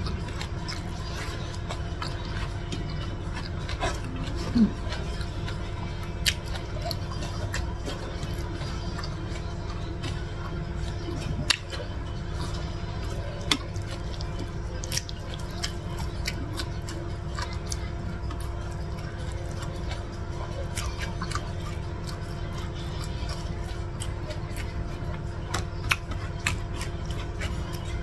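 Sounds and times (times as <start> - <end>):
steady low hum: 0.0 - 28.0
mouth chewing clicks and smacks: 0.1 - 11.9, 13.2 - 28.0.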